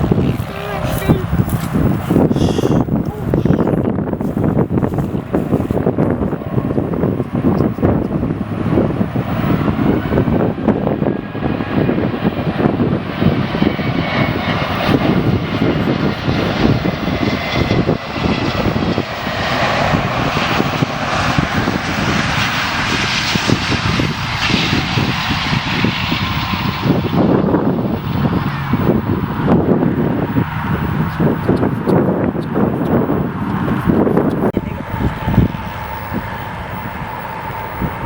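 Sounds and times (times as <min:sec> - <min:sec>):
jet engines rushing: 0:00.0 - 0:38.0
faint falling whine: 0:34.6 - 0:38.0.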